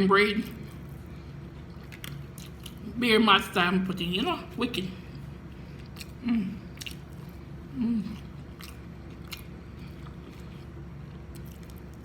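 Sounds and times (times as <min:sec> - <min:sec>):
wet chewing and mouth smacks: 0:00.7 - 0:02.9, 0:05.1 - 0:07.5, 0:08.1 - 0:12.0
person humming mm: 0:07.7 - 0:08.2.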